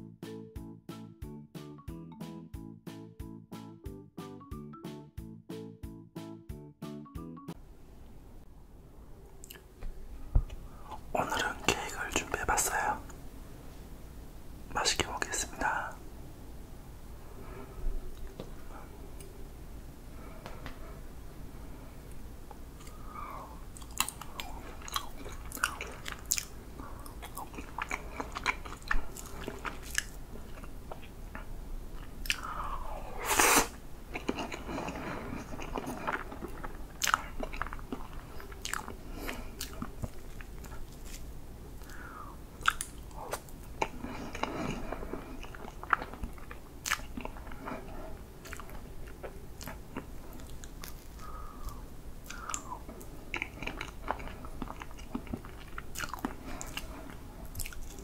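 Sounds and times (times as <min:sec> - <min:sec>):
lip smacking: 0:09.3 - 0:09.8, 0:22.1 - 0:58.0
wet chewing: 0:23.7 - 0:58.0.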